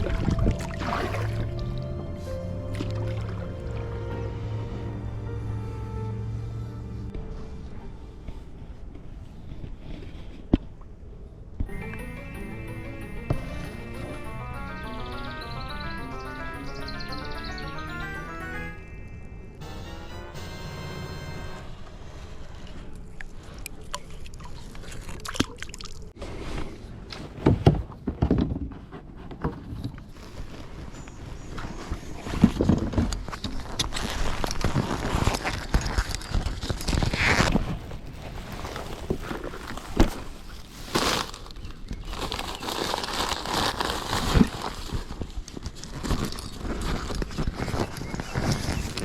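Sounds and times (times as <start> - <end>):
water trickling and splashing: 0.0 - 1.9, 2.7 - 4.0, 23.4 - 26.2
gear rustling and crinkling: 28.8 - 49.0.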